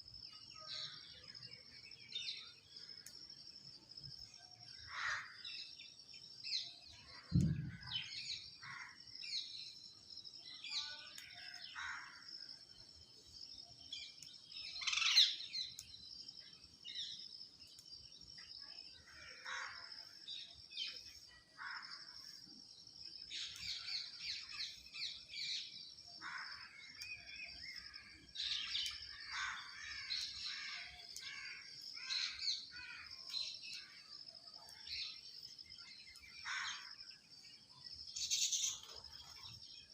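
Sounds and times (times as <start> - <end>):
birds chirping and calling: 4.2 - 9.9, 13.4 - 16.2, 23.2 - 39.9.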